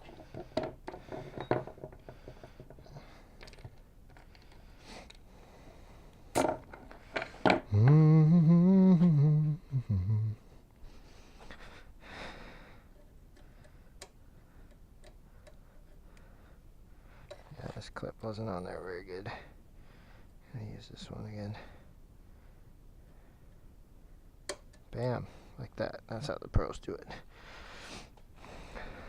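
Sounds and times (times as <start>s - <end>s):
man humming a tune: 7.6s - 10.6s.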